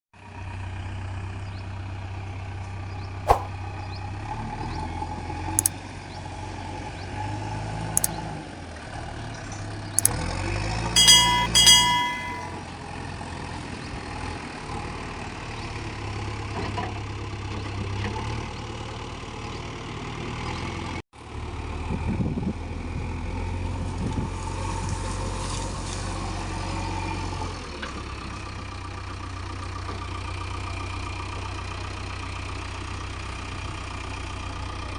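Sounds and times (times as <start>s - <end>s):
sharp metallic knocks: 3.3s - 3.5s, 11.0s - 12.5s
short high-pitched tones: 11.0s - 12.5s.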